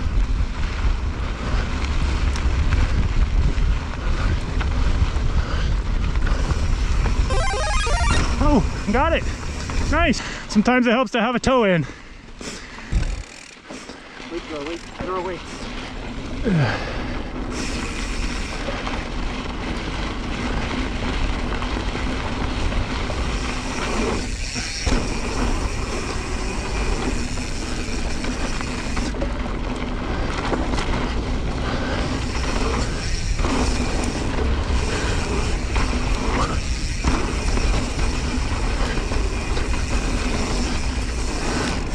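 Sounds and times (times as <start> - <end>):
bike tyres crunching on dirt: 0.0 - 7.3, 12.0 - 41.9
brief falling tone: 7.3 - 8.5.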